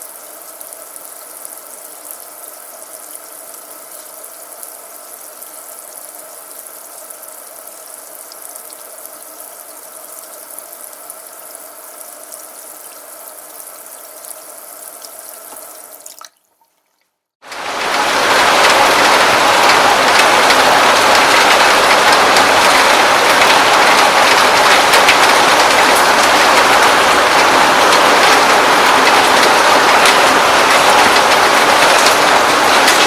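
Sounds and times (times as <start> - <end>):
steady rain: 0.0 - 16.0, 17.4 - 33.0
running dripping water: 0.0 - 17.1.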